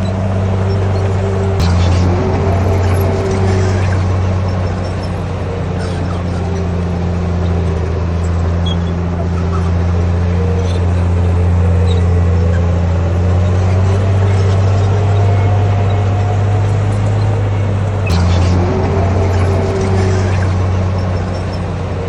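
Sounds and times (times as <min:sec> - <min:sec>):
bulldozer diesel engine running: 0:00.0 - 0:22.0
faint wavering whine: 0:00.0 - 0:22.0
sharp click: 0:00.8 - 0:06.4, 0:18.0 - 0:21.8.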